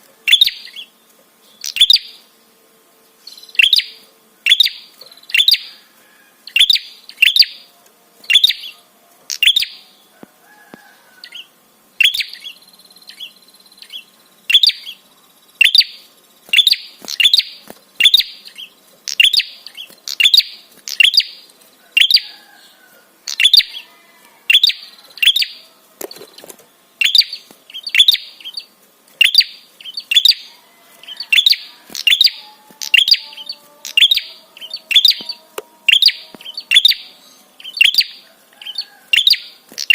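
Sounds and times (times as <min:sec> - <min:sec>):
bird giving sharp chirps: 0:12.0 - 0:15.0, 0:15.6 - 0:21.4, 0:27.0 - 0:39.9.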